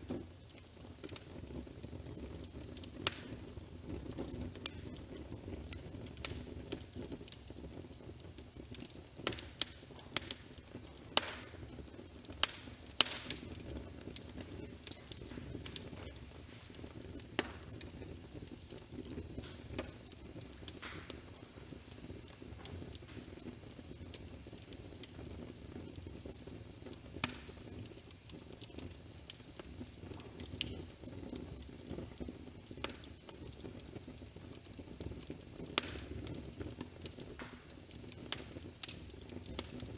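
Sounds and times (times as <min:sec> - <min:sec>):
wood fire crackling: 0:00.0 - 0:39.9
sharp snaps: 0:12.4 - 0:13.6.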